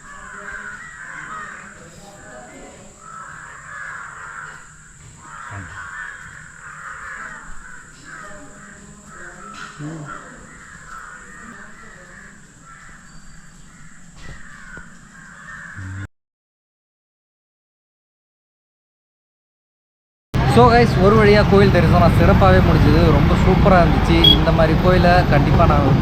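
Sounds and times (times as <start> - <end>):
crows cawing: 0.0 - 16.1.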